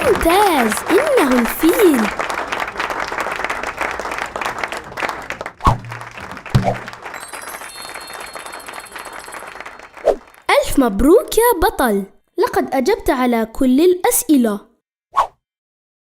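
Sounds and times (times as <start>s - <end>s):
applause: 0.0s - 11.2s
high chime-like tone: 7.1s - 10.2s.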